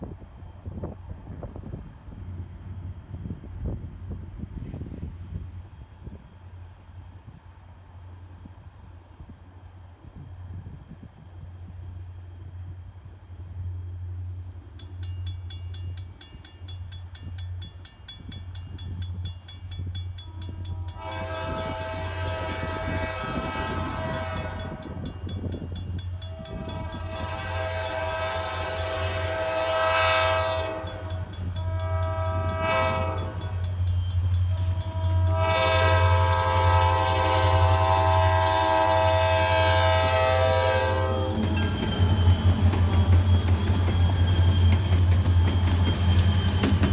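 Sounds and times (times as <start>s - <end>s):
crossing bell ringing: 14.8s - 36.3s, 40.9s - 46.9s
locomotive engine rumble: 18.9s - 46.9s
train horn blasts: 20.2s - 43.8s.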